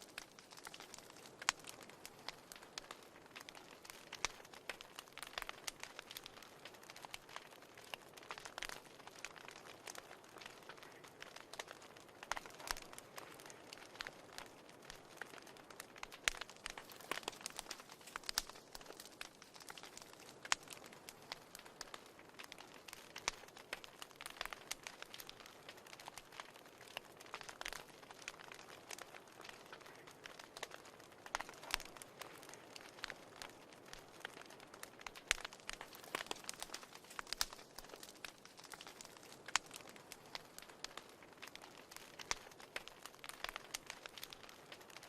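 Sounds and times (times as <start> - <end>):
wood fire crackling: 0.0 - 45.0.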